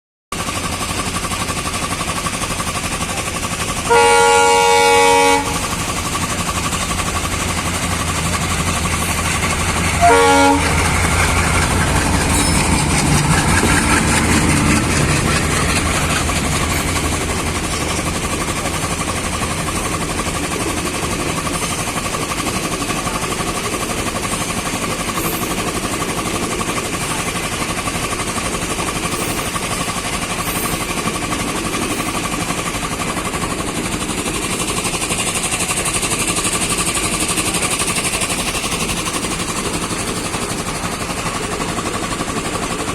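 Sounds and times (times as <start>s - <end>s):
train rumble and rail noise: 0.3s - 42.9s
train horn: 3.8s - 5.9s, 9.9s - 11.1s.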